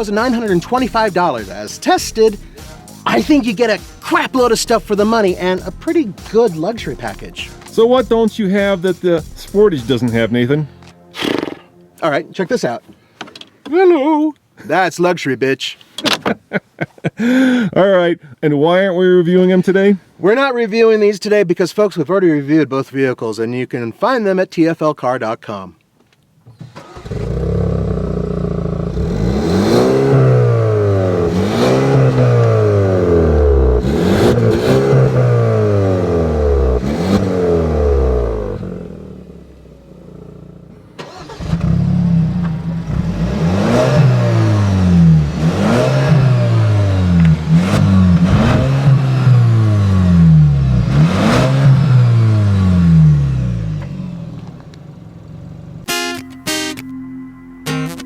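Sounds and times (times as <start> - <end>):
car engine revving: 26.7 - 55.9.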